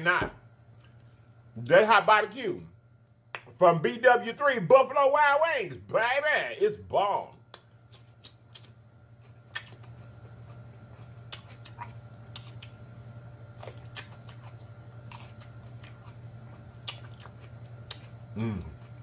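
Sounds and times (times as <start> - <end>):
person chewing with lip smacks: 7.5 - 12.8, 13.6 - 19.0.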